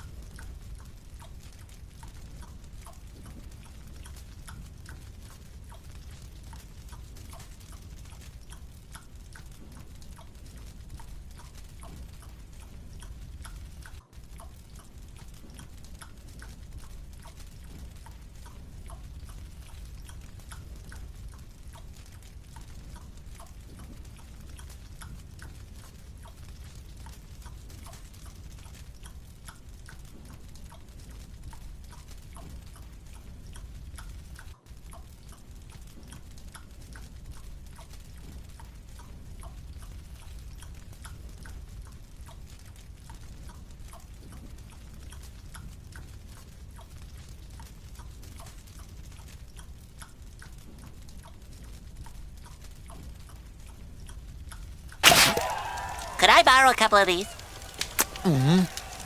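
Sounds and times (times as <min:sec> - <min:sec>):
wet chewing smacks: 0:55.0 - 0:56.2, 0:57.2 - 0:59.0.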